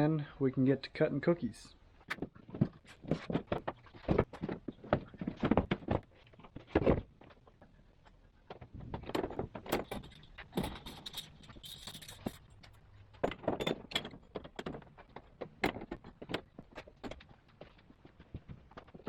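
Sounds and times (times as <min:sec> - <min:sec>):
metallic clinks and rattles: 0:08.0 - 0:19.0.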